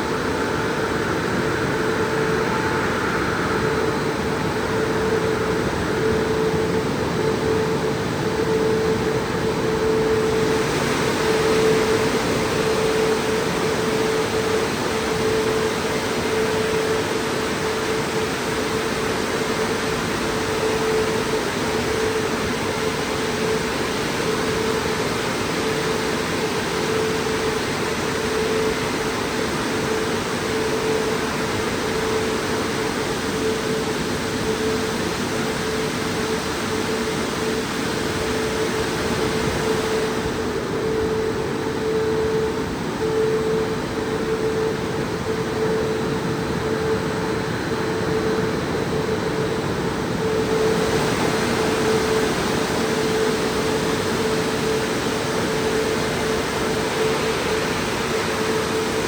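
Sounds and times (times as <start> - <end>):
constant hum: 0.0 - 59.0.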